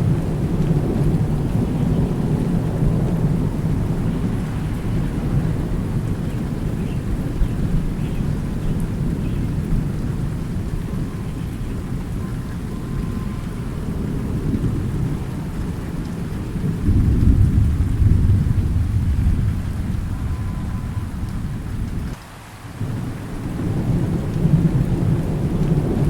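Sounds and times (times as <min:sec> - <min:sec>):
thunder rumbling: 0:00.0 - 0:22.2, 0:22.8 - 0:26.0
steady rain: 0:00.0 - 0:26.0.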